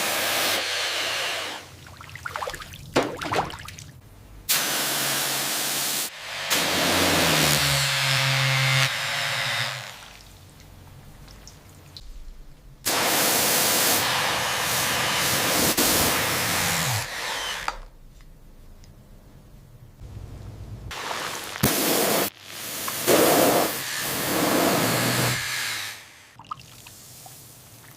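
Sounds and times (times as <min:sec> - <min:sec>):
loud hissing of rust-removal tool: 0:04.5 - 0:10.0, 0:12.9 - 0:17.6, 0:20.9 - 0:26.4
low hum: 0:17.9 - 0:20.9.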